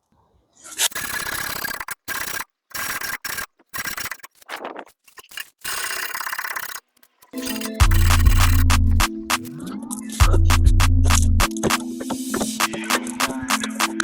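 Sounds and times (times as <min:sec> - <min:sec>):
music with heavy beat: 0:07.4 - 0:09.6, 0:10.2 - 0:14.0.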